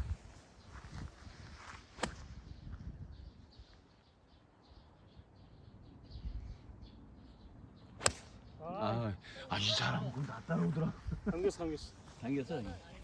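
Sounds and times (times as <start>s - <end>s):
faint bird chirps: 0.5s - 10.4s
golf club striking ball: 8.0s - 8.4s.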